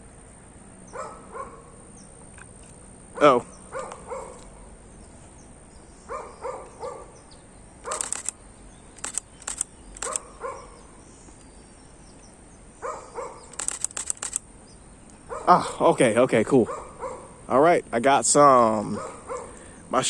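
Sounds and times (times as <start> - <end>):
dog barking: 0.9 - 1.8, 3.2 - 4.5, 6.1 - 7.2, 7.8 - 8.2, 10.0 - 10.8, 12.8 - 13.6, 15.3 - 15.6, 16.6 - 17.4, 18.9 - 19.6
camera shutter clicking: 7.9 - 10.4, 13.5 - 14.5.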